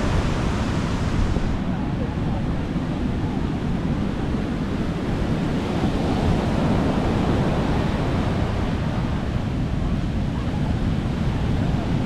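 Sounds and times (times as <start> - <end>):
sea waves breaking on beach: 0.0 - 1.7
wind on microphone: 0.0 - 12.0.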